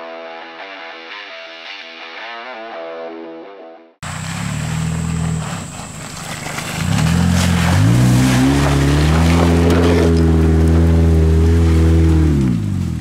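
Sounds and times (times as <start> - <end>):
car engine revving: 4.0 - 13.0.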